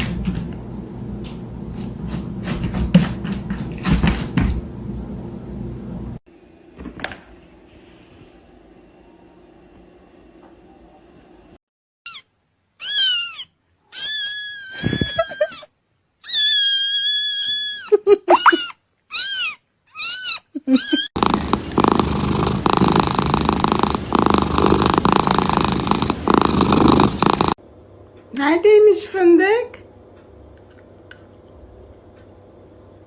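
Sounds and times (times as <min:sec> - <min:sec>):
cat meowing: 0:12.8 - 0:15.5, 0:19.1 - 0:21.1
cat purring: 0:21.2 - 0:27.6.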